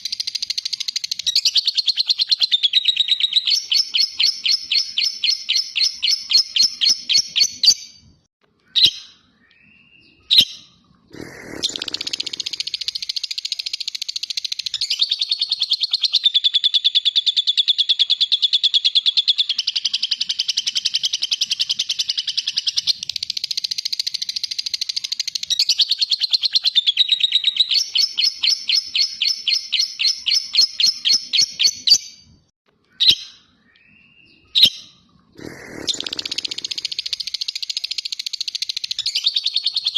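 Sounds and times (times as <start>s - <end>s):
lovebird chattering trill: 11.2s - 32.0s, 34.5s - 39.9s
short bird calls: 32.9s - 37.9s.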